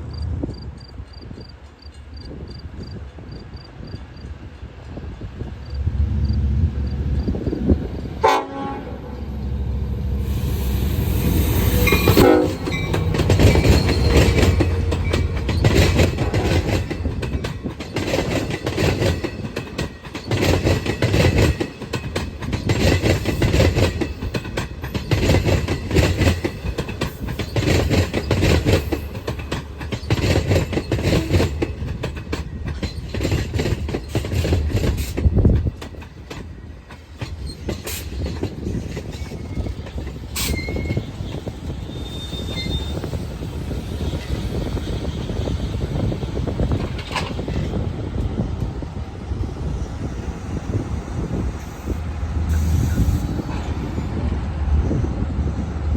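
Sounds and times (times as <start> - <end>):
train wheels clattering: 0.8 - 54.2
train horn tone: 8.2 - 16.9.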